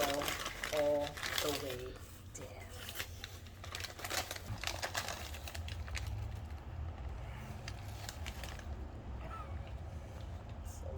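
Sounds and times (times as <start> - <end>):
crisp clicks and crackles of food: 2.9 - 8.8.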